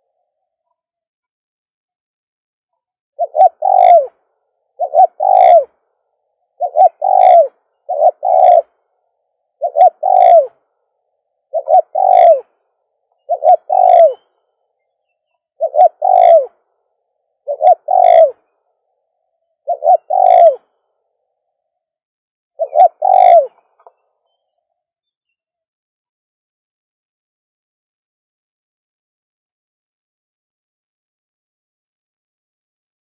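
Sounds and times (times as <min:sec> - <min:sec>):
dove cooing: 0:03.2 - 0:10.7, 0:11.4 - 0:14.4, 0:15.6 - 0:16.7, 0:17.4 - 0:18.6, 0:19.6 - 0:20.8, 0:22.6 - 0:24.0.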